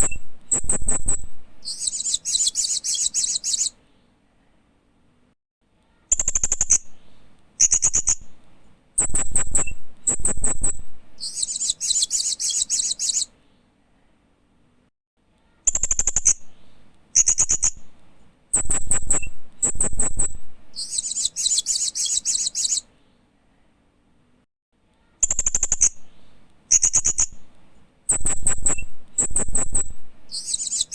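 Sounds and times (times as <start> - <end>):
parrot chirping: 0.0 - 3.8, 9.0 - 13.3, 18.6 - 22.9, 28.1 - 30.9.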